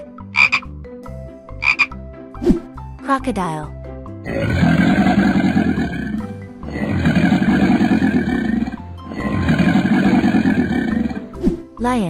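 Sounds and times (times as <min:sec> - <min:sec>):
background music: 0:00.0 - 0:12.0
crocodile growls: 0:04.3 - 0:11.4.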